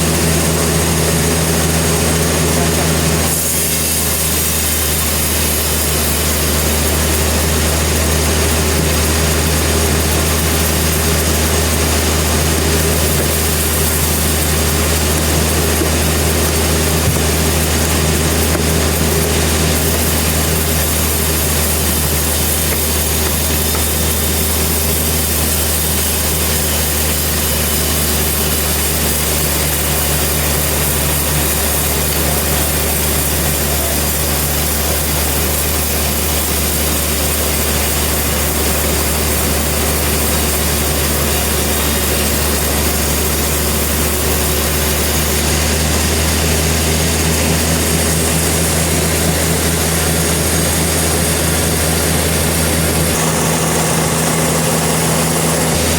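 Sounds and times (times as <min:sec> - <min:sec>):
sawmill engine drone: 0:00.0 - 0:55.9.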